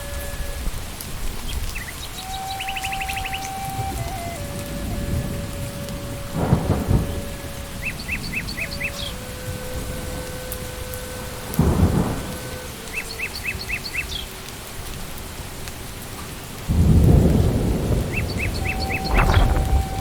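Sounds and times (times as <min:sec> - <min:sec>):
thunder rumbling: 0:00.0 - 0:14.3, 0:16.7 - 0:20.0
rain falling in forest: 0:00.0 - 0:20.0
bird chirping: 0:01.5 - 0:05.4, 0:06.0 - 0:10.5, 0:11.6 - 0:14.3, 0:18.1 - 0:20.0.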